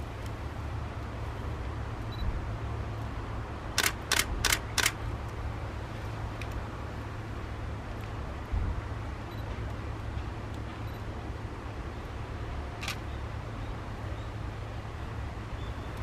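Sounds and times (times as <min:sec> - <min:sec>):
camera shutter firing: 0:03.8 - 0:05.0, 0:12.8 - 0:13.0.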